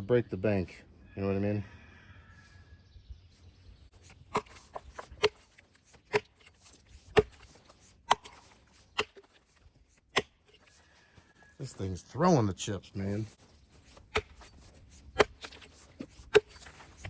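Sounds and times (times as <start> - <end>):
axe chopping into log: 4.0 - 9.4, 10.1 - 10.6, 13.9 - 16.8.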